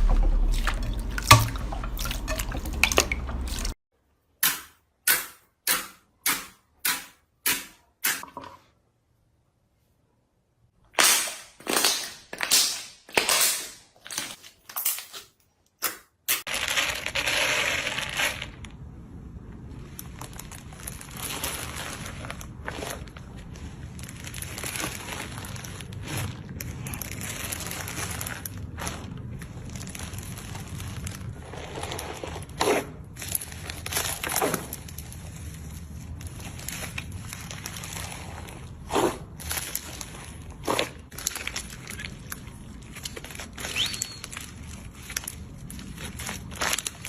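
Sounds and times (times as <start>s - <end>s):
low hum: 0.0s - 3.8s
slime crunching and crackling: 16.4s - 47.0s.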